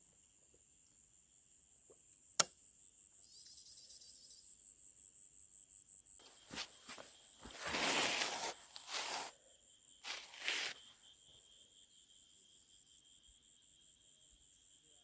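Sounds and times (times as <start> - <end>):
insects chirring: 0.0 - 14.6
short rustling: 6.2 - 9.3, 10.0 - 10.9.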